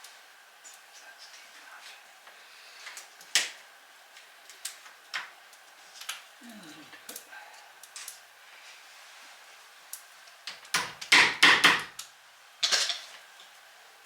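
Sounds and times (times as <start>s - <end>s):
hammer striking wood: 11.1s - 11.9s.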